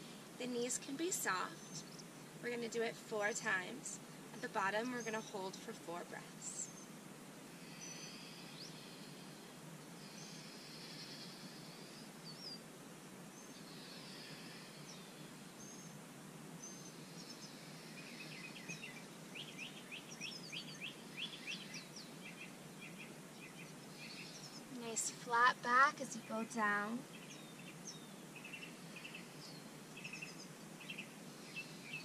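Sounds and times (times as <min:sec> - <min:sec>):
faint outdoor hiss: 0:00.0 - 0:32.0
birds chirping and calling: 0:16.6 - 0:32.0.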